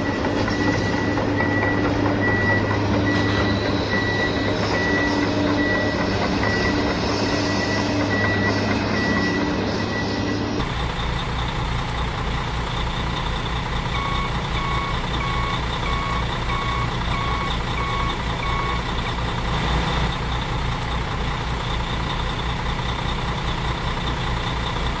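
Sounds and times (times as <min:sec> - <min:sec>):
reversing alarm beeping: 0:00.0 - 0:12.2, 0:12.9 - 0:21.0
truck engine rumbling: 0:00.0 - 0:25.0.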